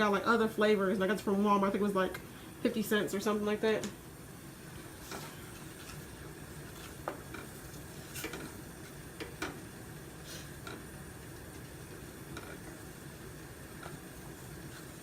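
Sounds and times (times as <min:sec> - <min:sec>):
gravy hissing: 0:10.0 - 0:11.2.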